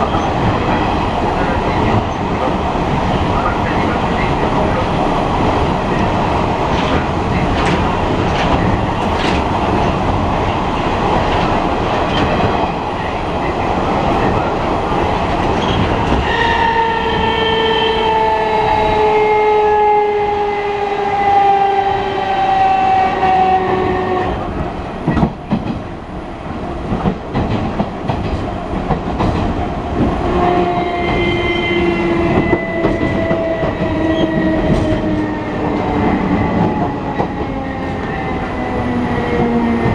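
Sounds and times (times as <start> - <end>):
train rumble on rails: 0.0 - 39.9.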